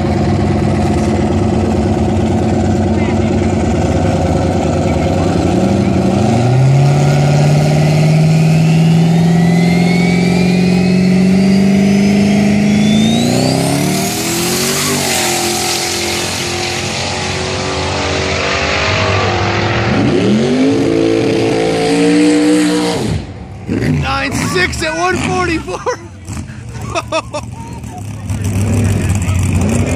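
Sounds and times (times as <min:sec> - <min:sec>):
drag car engine revving: 0:00.0 - 0:29.9
turbo whistle: 0:08.5 - 0:13.7.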